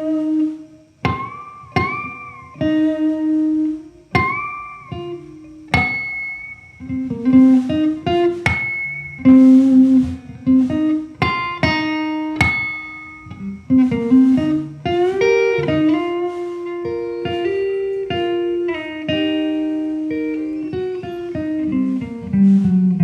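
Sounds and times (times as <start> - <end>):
guitar melody: 0.0 - 23.0.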